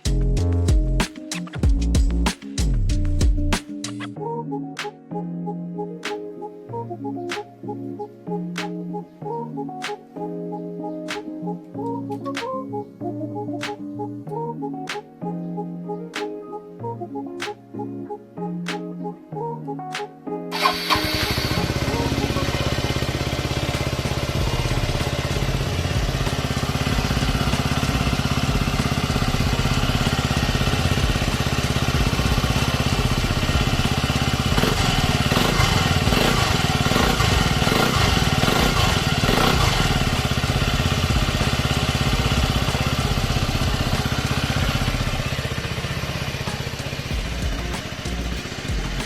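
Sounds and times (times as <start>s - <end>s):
engine throttle blips: 20.6s - 49.0s
scooter engine running: 20.6s - 49.0s.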